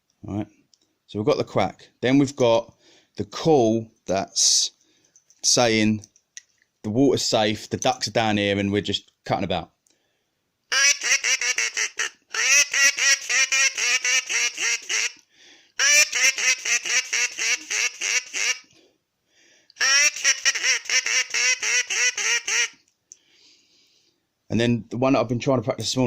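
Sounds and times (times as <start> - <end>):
duck call quacking notes: 10.7 - 15.2, 15.8 - 18.7, 19.8 - 22.8.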